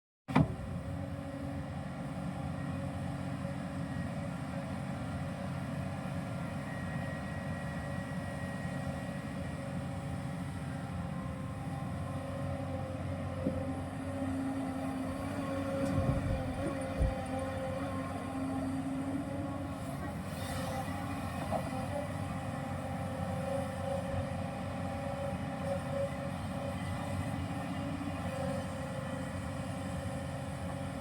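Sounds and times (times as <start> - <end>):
excavator diesel engine running: 0.5 - 31.0.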